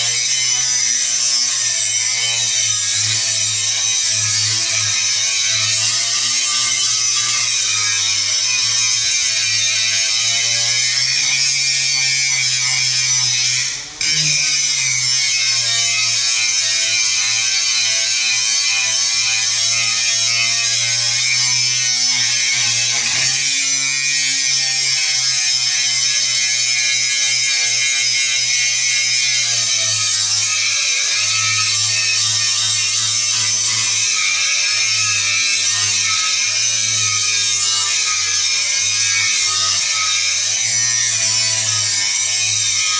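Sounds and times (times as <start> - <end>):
angle grinder grinding steel: 0.0 - 42.9.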